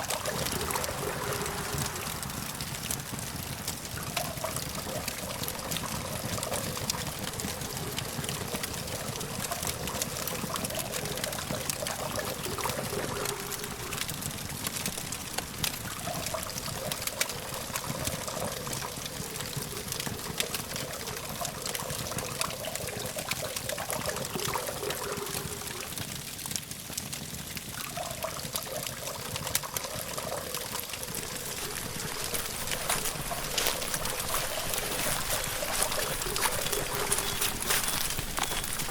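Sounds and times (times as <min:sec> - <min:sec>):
campfire crackling and popping: 0:00.0 - 0:38.9
distant traffic hum: 0:31.0 - 0:38.9.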